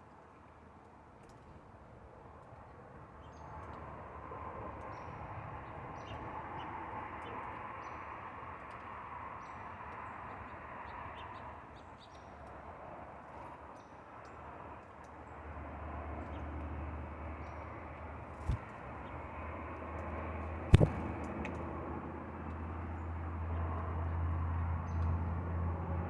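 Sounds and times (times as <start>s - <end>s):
small birds chirping: 4.8s - 12.7s, 17.4s - 19.4s, 20.7s - 21.2s.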